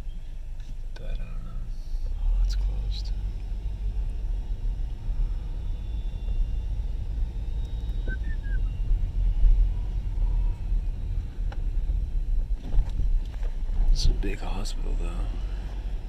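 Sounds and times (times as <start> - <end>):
car cabin rumble: 0.0 - 16.0
faint short chirps: 8.0 - 8.7.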